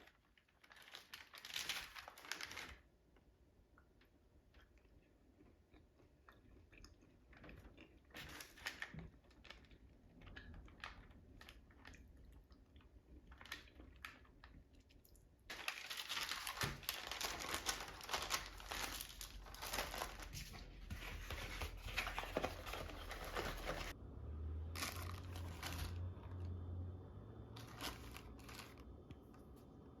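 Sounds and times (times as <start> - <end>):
wrapping crinkling and rustling: 0.0 - 3.0, 7.4 - 14.7, 15.5 - 24.0, 24.8 - 26.4, 27.6 - 29.6.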